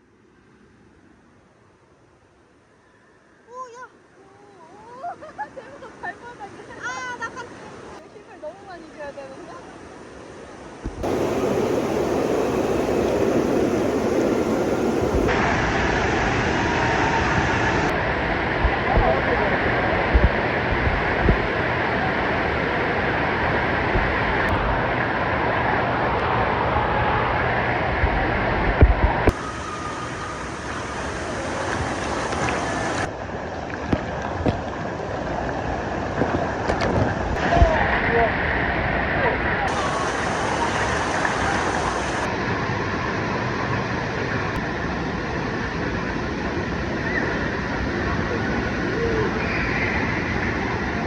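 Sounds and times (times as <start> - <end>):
rushing water: 10.6 - 27.8, 29.0 - 51.0
wind buffeting microphone: 10.8 - 15.4.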